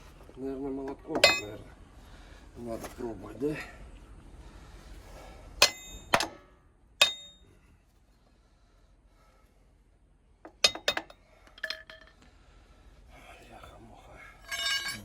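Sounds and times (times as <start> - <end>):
hammer striking steel: 5.6 - 7.4
metal clinks: 10.6 - 12.2, 14.4 - 15.0.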